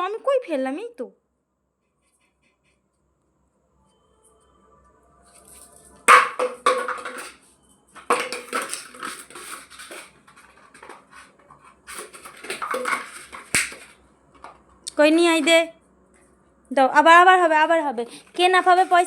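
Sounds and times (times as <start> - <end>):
plastic bottle clattering on floor: 6.0 - 7.4, 8.0 - 14.6, 18.3 - 19.0.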